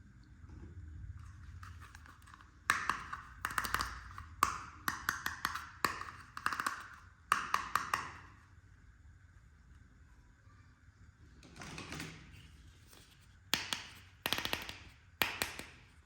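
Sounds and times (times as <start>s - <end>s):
plastic toy pieces clicking: 13.6s - 15.8s.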